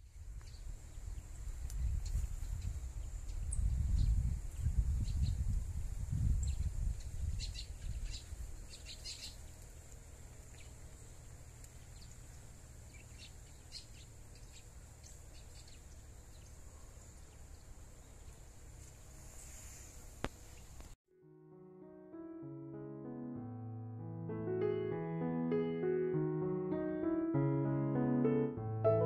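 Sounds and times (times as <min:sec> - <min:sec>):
songbirds chirping: 0:06.4 - 0:21.0.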